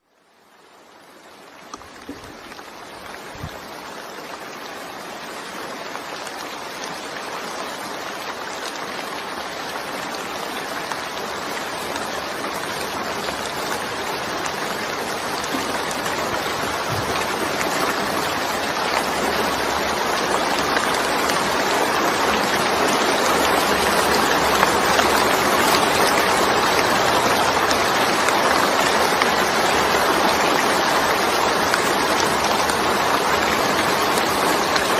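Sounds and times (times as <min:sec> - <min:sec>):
heavy rain hissing: 0:01.8 - 0:34.9.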